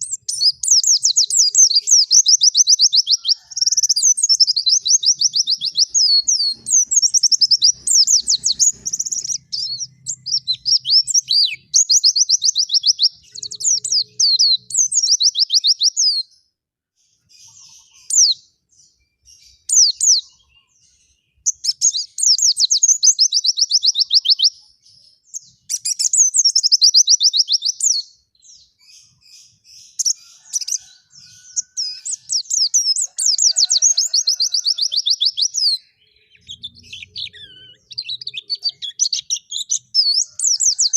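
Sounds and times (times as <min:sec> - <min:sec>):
songbird trilling: 0:00.0 - 0:16.2, 0:25.4 - 0:40.9.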